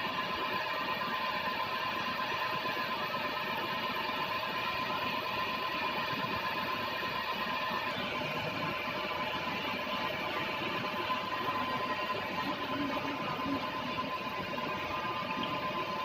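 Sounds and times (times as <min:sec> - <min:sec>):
milling machine running with whine: 0:00.0 - 0:16.0.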